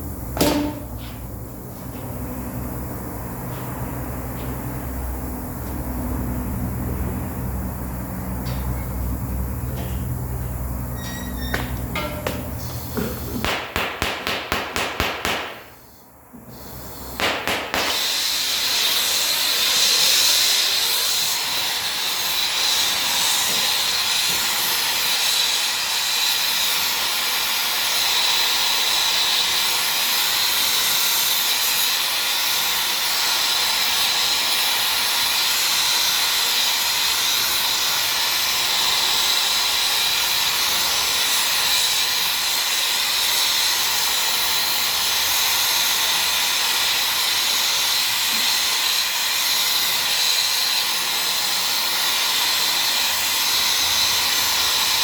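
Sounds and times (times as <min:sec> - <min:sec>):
compressed air hissing: 0:11.5 - 0:13.7, 0:15.3 - 0:20.6.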